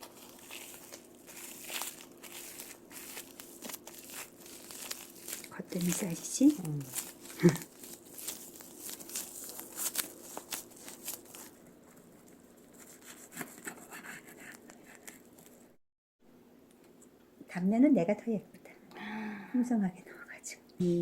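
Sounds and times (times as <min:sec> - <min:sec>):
dry seaweed sheet crinkling: 0:00.0 - 0:12.0.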